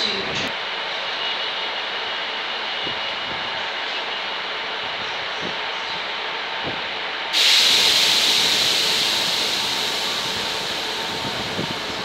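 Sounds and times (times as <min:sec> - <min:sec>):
freight train rumbling: 0:00.0 - 0:12.0
air brake hiss: 0:07.3 - 0:12.0.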